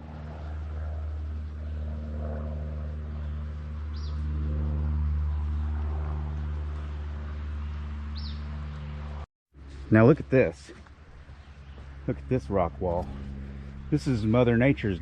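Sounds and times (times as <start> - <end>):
low engine-like drone: 0.0 - 15.0
bird chirps: 3.2 - 4.3, 8.1 - 8.9.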